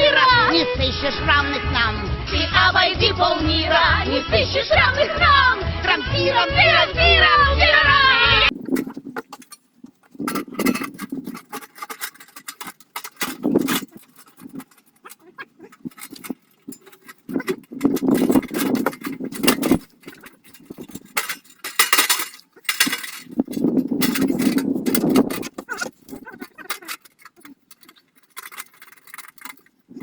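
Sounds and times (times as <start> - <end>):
knocks and metallic clinks: 8.5 - 30.0.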